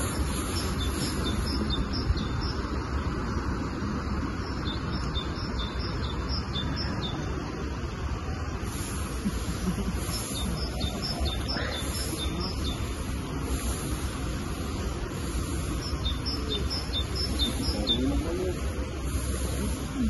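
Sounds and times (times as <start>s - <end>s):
songbird chirping: 0.0s - 3.2s, 4.2s - 7.5s, 9.7s - 13.8s, 15.2s - 18.6s
outdoor background noise: 0.0s - 20.0s.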